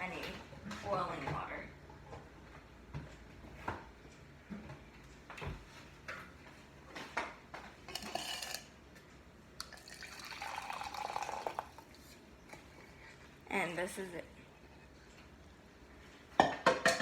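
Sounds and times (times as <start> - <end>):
water poured into a container: 9.6 - 12.1
kitchenware knocking: 16.4 - 17.0.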